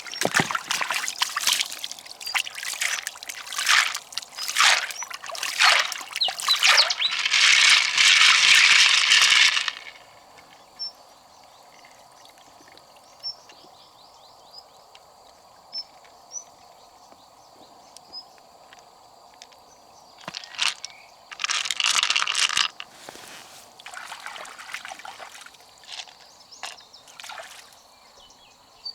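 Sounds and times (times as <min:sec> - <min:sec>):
water splashing and pouring: 0:00.0 - 0:10.1, 0:21.4 - 0:27.8.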